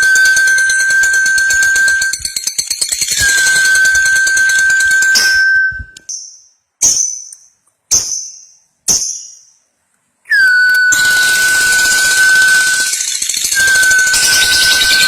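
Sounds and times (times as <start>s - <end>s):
high held tone: 0.0s - 2.4s, 3.2s - 6.1s, 10.3s - 15.0s
ringing dings: 0.0s - 6.4s, 10.7s - 15.0s.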